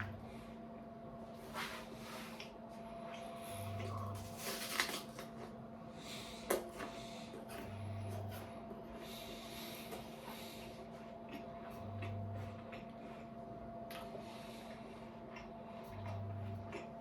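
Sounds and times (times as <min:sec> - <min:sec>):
steady low hum: 0:00.0 - 0:17.0
apple chewing and crunching: 0:03.1 - 0:05.6, 0:06.4 - 0:17.0.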